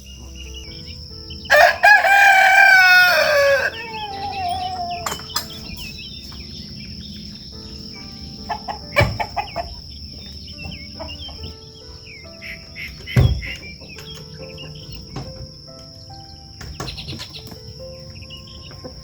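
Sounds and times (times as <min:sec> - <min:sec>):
chickens clucking: 0:00.0 - 0:19.0
high insect drone: 0:00.0 - 0:19.0
small birds chirping: 0:00.0 - 0:19.0
sharp knocks: 0:09.0 - 0:09.5, 0:13.0 - 0:14.3.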